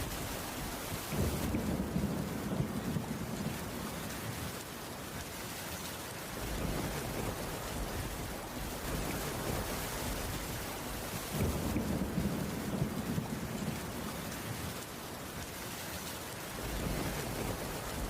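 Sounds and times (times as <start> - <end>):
heavy rain on wooden roof: 0.0 - 18.0.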